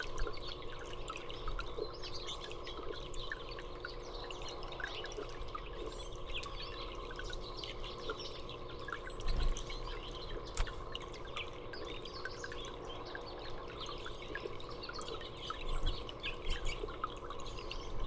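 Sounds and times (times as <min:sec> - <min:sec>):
steady background hum: 0:00.0 - 0:18.0
songbirds chirping: 0:00.3 - 0:18.0
sharp click: 0:10.5 - 0:10.8.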